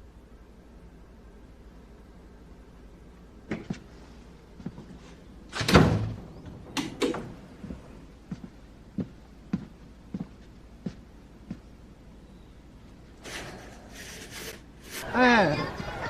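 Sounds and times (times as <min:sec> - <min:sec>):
door shutting thud: 0:05.5 - 0:07.4.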